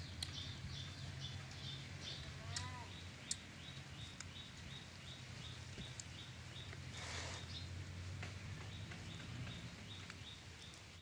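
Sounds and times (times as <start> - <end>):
bird chirping: 0.0 - 11.0
faint clicks: 2.5 - 3.4.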